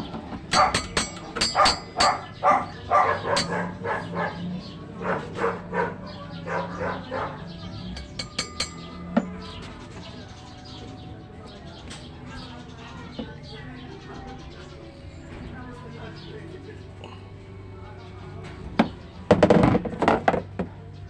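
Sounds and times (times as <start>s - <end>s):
sharp knocks: 0.5s - 2.4s, 8.0s - 8.8s
dog barking: 0.5s - 7.8s.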